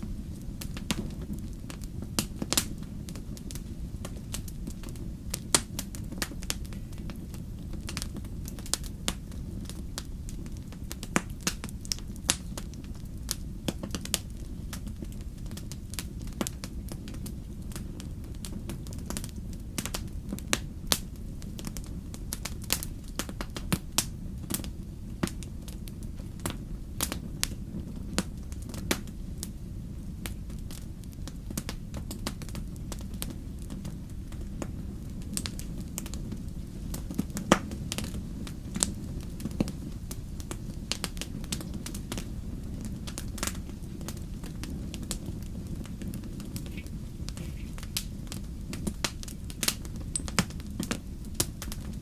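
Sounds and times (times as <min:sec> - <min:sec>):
bonfire crackling and popping: 0:00.0 - 0:52.0.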